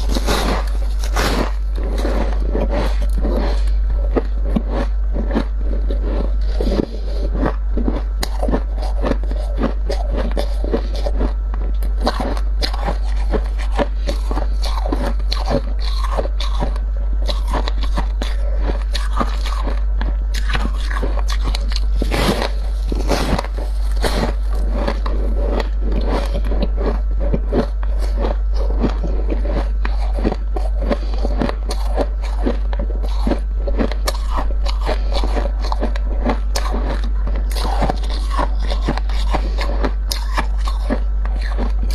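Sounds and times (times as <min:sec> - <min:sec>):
frost crunching and squeaking: 0:00.0 - 0:41.9
steady low hum: 0:00.0 - 0:41.9.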